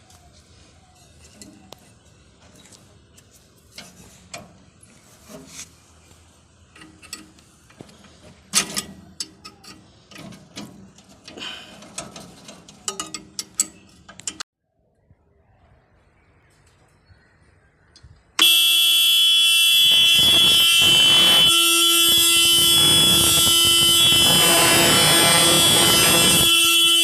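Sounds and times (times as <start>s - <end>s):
metal tools clattering on metal: 8.5s - 14.4s.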